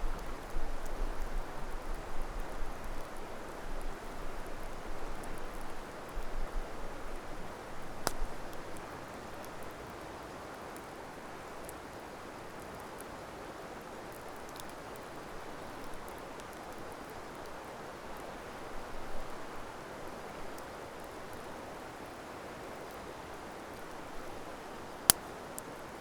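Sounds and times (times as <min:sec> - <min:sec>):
campfire crackling and popping: 0:07.0 - 0:09.7, 0:14.0 - 0:17.6, 0:23.7 - 0:25.8.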